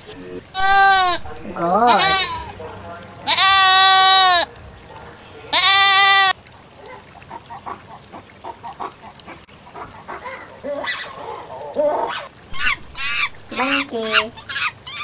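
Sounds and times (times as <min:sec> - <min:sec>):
goat bleating: 0:00.5 - 0:02.6, 0:03.2 - 0:04.5, 0:05.5 - 0:06.4.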